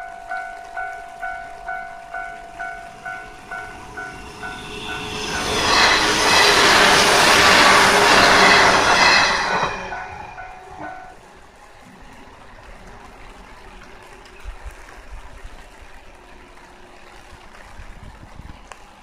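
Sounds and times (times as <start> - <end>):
passing train: 0.0 - 19.0
wind rumbling on microphone: 17.2 - 18.7.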